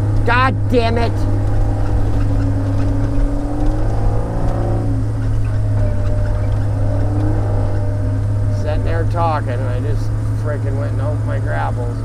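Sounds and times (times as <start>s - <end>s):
diesel engine droning under load: 0.0s - 12.0s
hydraulic whine: 0.0s - 12.0s.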